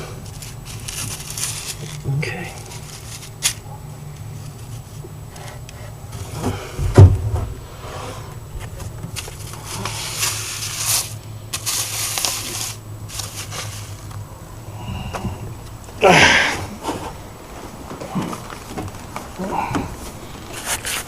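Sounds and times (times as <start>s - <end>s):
wood shavings rustling on paper: 0.0s - 6.4s, 8.0s - 14.2s.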